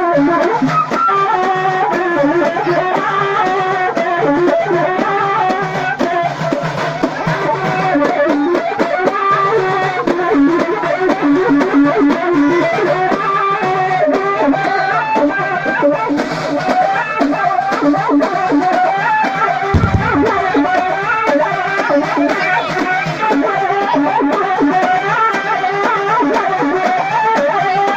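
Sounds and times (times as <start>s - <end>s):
steady drum rhythm: 19.8s - 22.2s.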